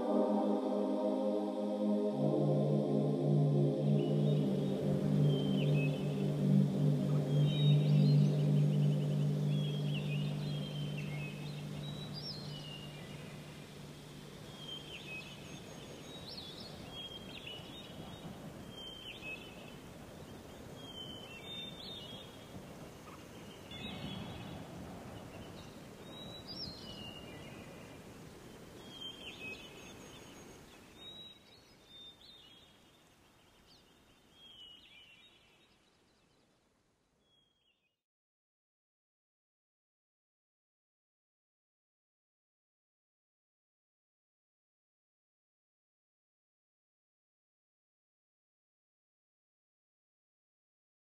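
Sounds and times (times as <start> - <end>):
held musical note: 0.0 - 14.3
steady background hiss: 0.0 - 37.2
birds chirping: 2.6 - 35.7.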